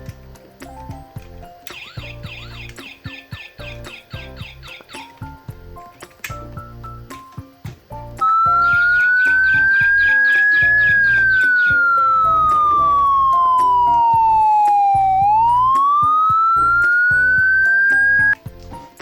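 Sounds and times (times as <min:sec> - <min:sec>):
light background music: 0:00.0 - 0:19.0
police siren wailing: 0:08.2 - 0:18.4.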